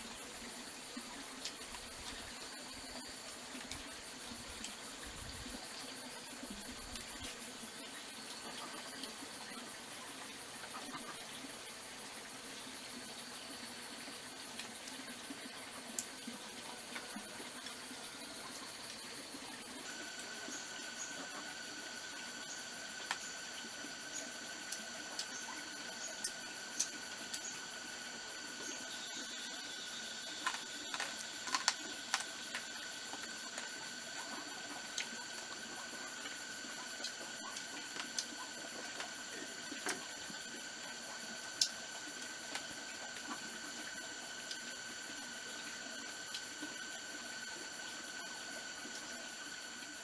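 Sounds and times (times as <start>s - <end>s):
insects chirring: 0.0s - 50.0s
steady insect tone: 0.0s - 50.0s
sharp clicks and snaps: 30.4s - 33.3s.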